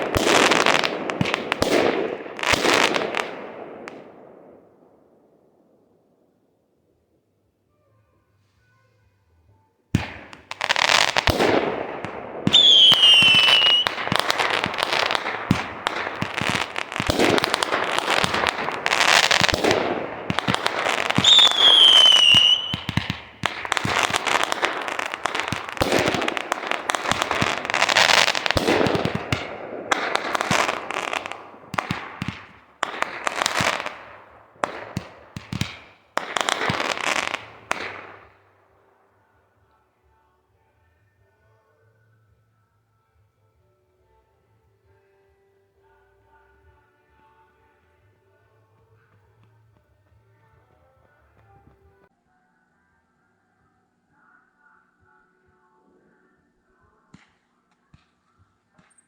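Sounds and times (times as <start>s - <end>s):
fireworks crackling and banging: 0.0s - 5.3s, 10.0s - 38.7s
firework whistles falling in pitch: 12.5s - 14.8s, 20.8s - 26.4s.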